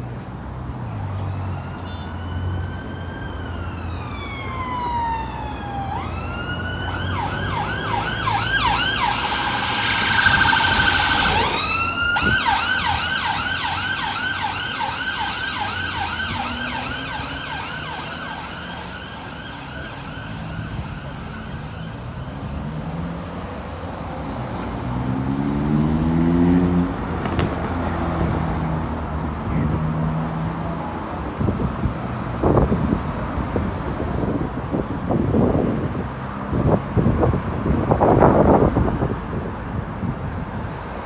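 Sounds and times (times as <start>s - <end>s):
road traffic: 0.0s - 41.0s
emergency vehicle siren: 0.7s - 41.0s
vehicle engine rising in pitch: 2.3s - 23.1s.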